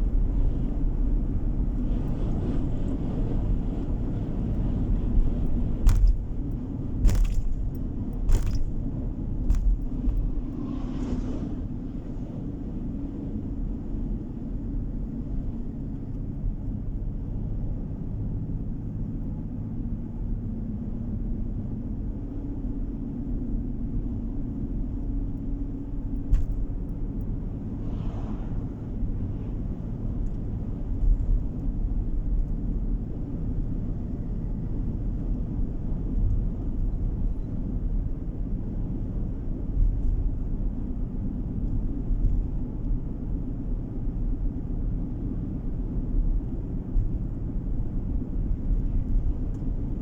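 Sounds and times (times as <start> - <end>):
car road and engine rumble: 0.0 - 50.0
sharp knocks: 5.8 - 6.4, 7.0 - 7.7, 8.3 - 8.8.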